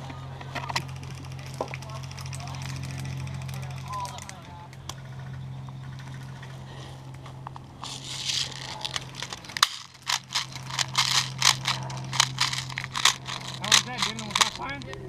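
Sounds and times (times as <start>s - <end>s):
low steady hum: 0.0s - 15.0s
footsteps crunching through dry leaves: 7.8s - 14.9s.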